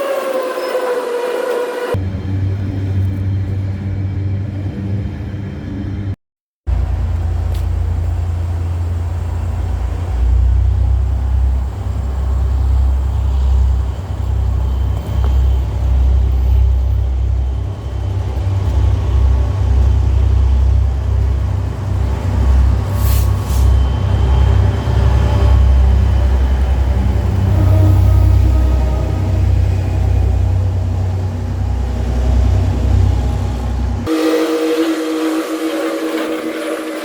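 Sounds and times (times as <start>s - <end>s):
brief hisses: 22.9s - 23.8s.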